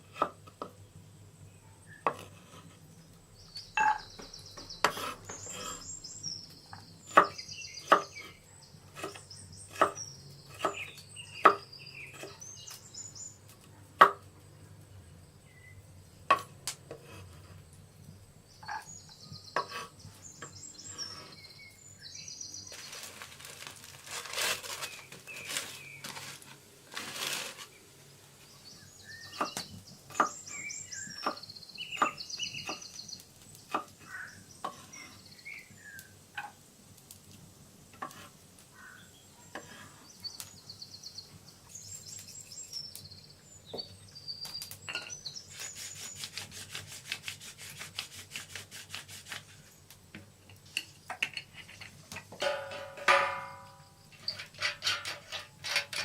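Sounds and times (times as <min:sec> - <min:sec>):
birds chirping trills: 0:02.9 - 0:13.4, 0:18.2 - 0:23.2, 0:28.4 - 0:36.2, 0:38.7 - 0:46.5, 0:50.6 - 0:56.0
scraping or rustling: 0:22.6 - 0:27.8, 0:51.2 - 0:56.0.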